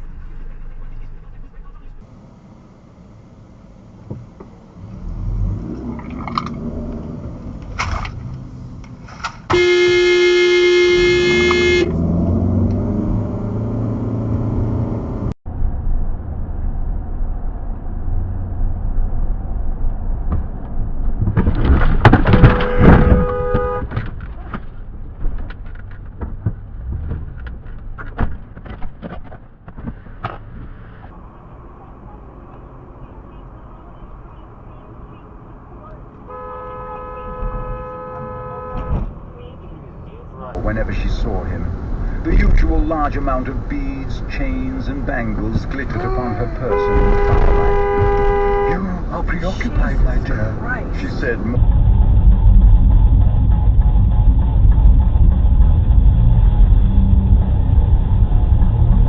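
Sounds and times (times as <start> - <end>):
car road and engine rumble: 0.0 - 59.0
car horn: 9.5 - 12.0, 22.2 - 24.0, 32.8 - 39.8, 45.9 - 49.1
knocks and rattles: 20.2 - 30.7.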